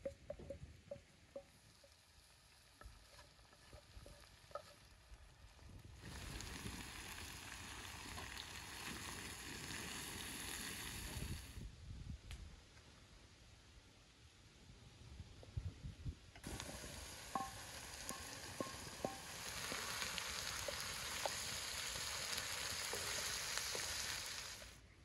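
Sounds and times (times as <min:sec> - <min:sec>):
vegetables sizzling in a wok: 0:01.6 - 0:11.5, 0:16.4 - 0:24.8.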